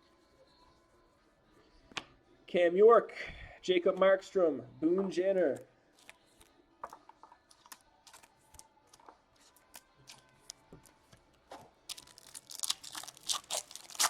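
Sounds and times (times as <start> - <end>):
foil wrapper crinkling: 11.9 - 14.0.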